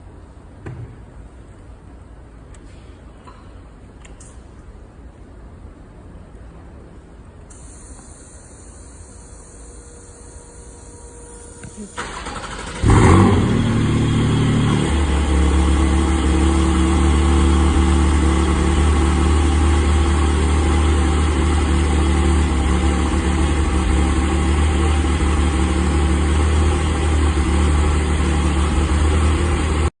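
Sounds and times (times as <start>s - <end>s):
car engine cold start and idle: 7.5s - 29.9s.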